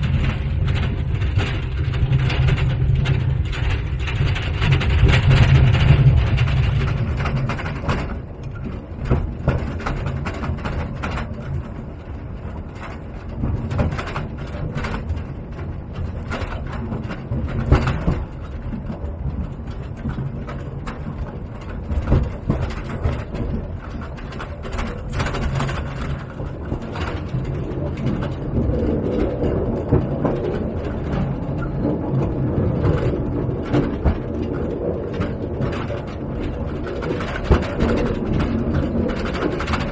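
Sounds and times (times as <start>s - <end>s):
mine train cars rattling: 0.0s - 39.9s
wheels and couplings knocking: 0.0s - 39.9s.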